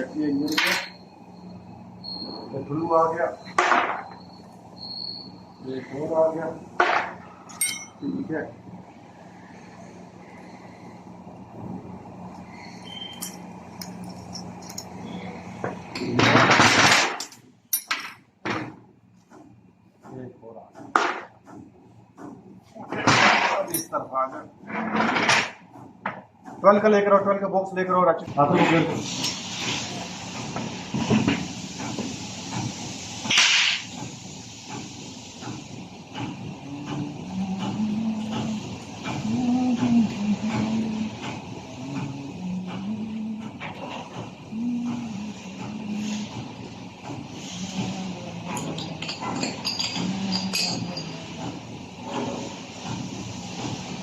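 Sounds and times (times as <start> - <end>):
steady low hum: 0.0 - 28.5, 35.4 - 53.7
metal parts clinking and knocking: 7.5 - 8.0, 13.1 - 15.0, 16.9 - 18.2, 48.6 - 51.2
short loud hiss: 33.2 - 33.9.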